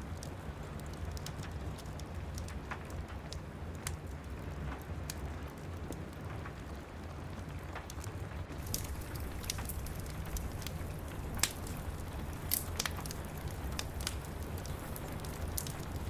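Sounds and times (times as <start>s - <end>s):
wood fire crackling: 0.0s - 16.0s
rain hissing: 8.5s - 16.0s.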